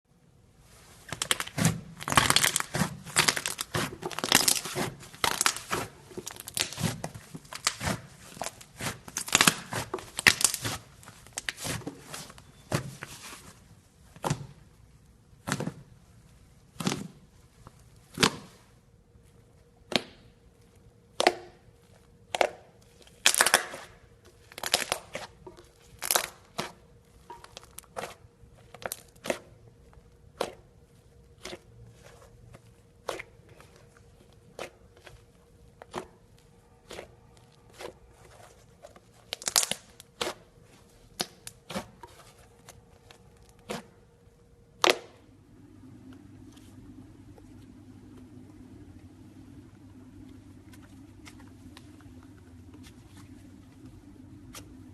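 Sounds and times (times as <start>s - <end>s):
slime crackling and tearing: 1.1s - 11.8s, 23.2s - 26.8s, 35.8s - 44.0s.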